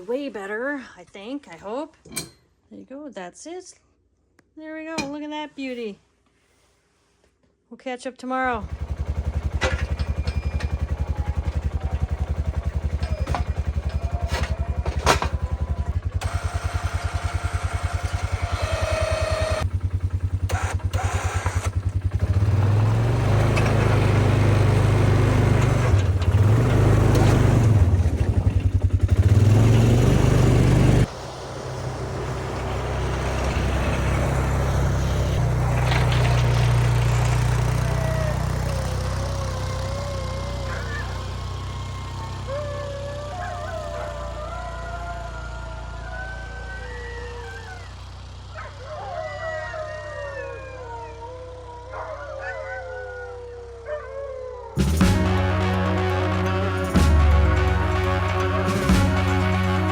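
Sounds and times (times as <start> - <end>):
snowmobile engine: 8.5 - 48.9, 54.8 - 59.9.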